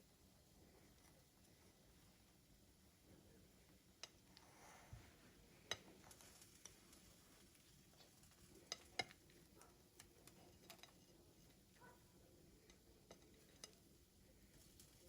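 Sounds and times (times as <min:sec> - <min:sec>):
faint light clicks and taps: 0:03.7 - 0:12.0, 0:12.6 - 0:13.8.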